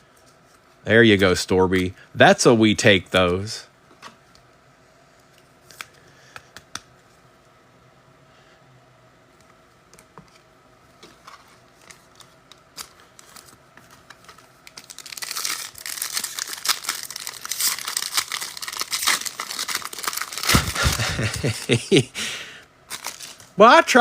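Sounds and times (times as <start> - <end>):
foil wrappers tearing and crinkling: 11.8 - 22.0, 22.9 - 23.5.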